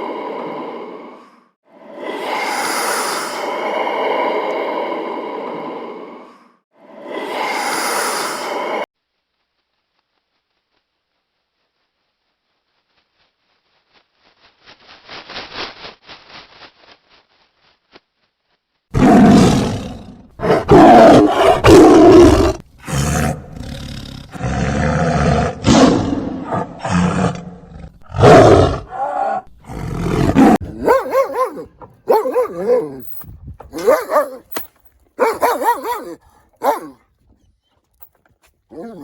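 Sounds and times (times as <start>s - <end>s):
animal harsh growling calls: 18.9s - 33.0s, 35.2s - 37.1s.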